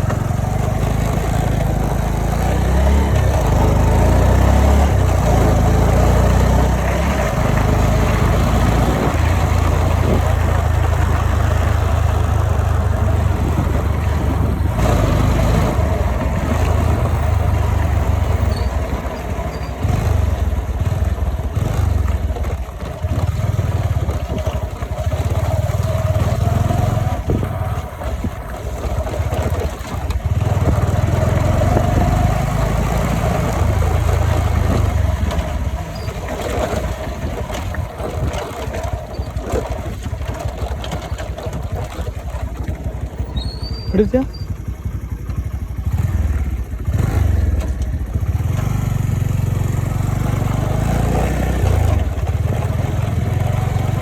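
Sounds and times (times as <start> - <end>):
vehicle engine and road rumble: 0.0 - 54.0
wind noise: 8.1 - 11.2, 12.8 - 17.4, 27.1 - 29.6.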